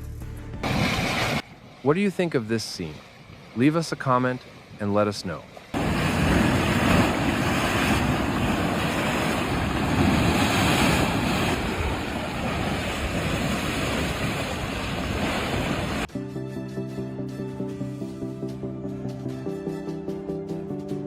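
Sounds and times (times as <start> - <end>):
heavy sea waves: 0.6 - 16.1
strong wind: 5.8 - 16.1
wind buffeting microphone: 5.8 - 16.1.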